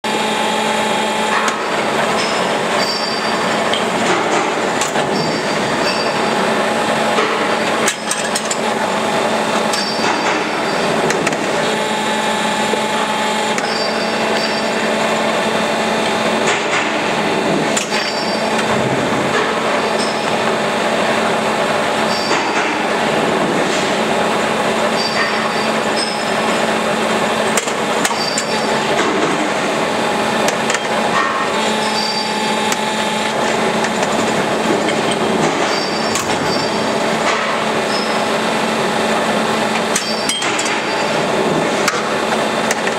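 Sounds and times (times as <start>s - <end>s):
machinery hum: 0.1s - 42.9s
metal clanks: 1.3s - 6.5s, 7.1s - 8.7s, 30.4s - 38.2s, 39.8s - 42.9s.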